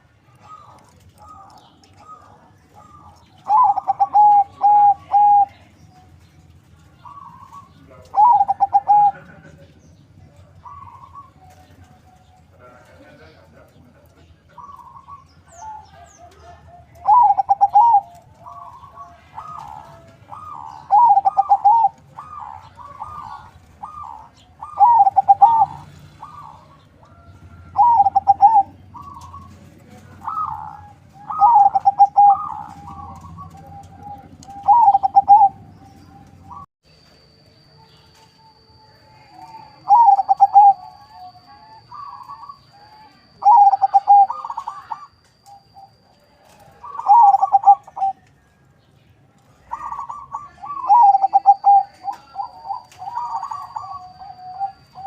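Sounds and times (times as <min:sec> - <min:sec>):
dove cooing: 0:00.0 - 0:36.7, 0:39.1 - 0:48.3, 0:49.5 - 0:55.0
faint steady high tone: 0:30.2 - 0:48.8, 0:49.4 - 0:55.0.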